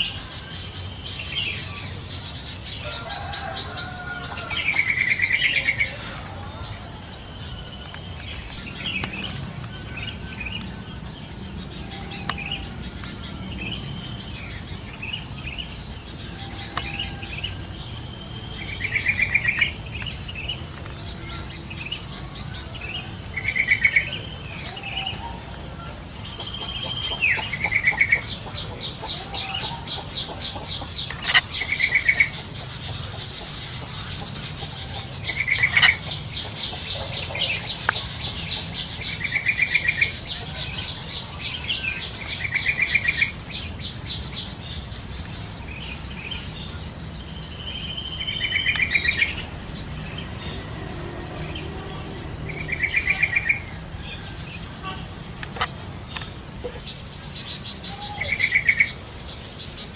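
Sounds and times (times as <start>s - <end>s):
fast ticking bird chatter: 25.5s - 46.9s.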